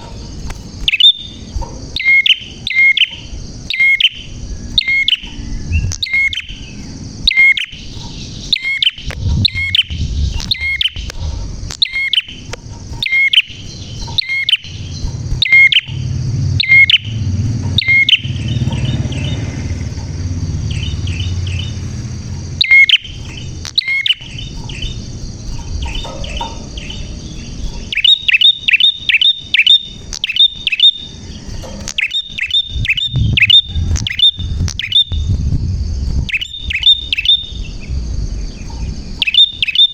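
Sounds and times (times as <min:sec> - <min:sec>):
bird chirping: 0:00.0 - 0:39.9
low rumble: 0:04.4 - 0:07.3, 0:08.0 - 0:13.0, 0:13.7 - 0:28.0, 0:31.2 - 0:39.6.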